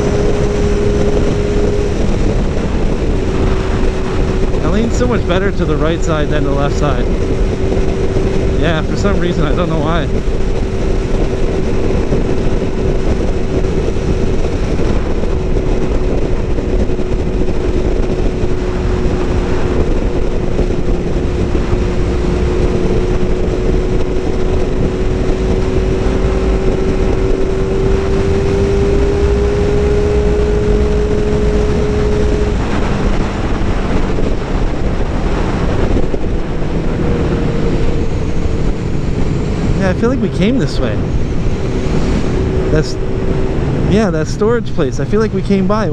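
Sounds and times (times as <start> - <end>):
motorcycle engine drone: 0.0 - 45.9
wind noise on microphone: 0.0 - 45.9.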